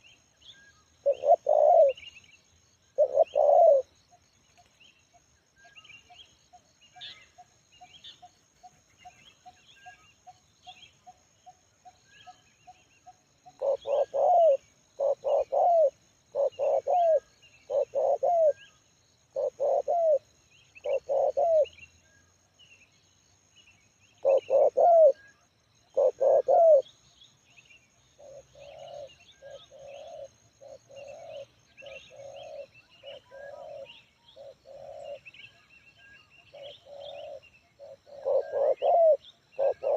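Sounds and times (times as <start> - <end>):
small birds chirping faintly: 0.0 - 39.9
dove cooing: 1.0 - 2.0, 3.0 - 3.9, 13.4 - 18.7, 19.3 - 20.2, 20.8 - 21.7, 24.2 - 25.3, 25.9 - 26.9, 28.2 - 35.3, 36.5 - 39.9.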